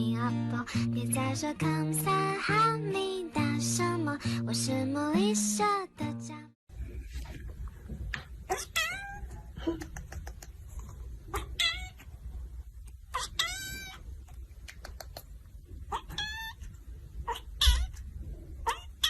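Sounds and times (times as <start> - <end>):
cat meowing: 8.5 - 9.5, 11.3 - 12.1, 13.1 - 14.0, 15.8 - 18.0, 18.6 - 19.0.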